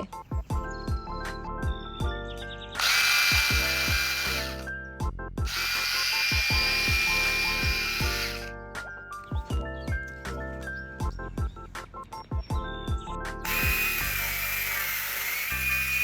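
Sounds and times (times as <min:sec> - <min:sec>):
electric chainsaw running: 0:02.8 - 0:04.6, 0:05.5 - 0:08.5, 0:13.4 - 0:16.0.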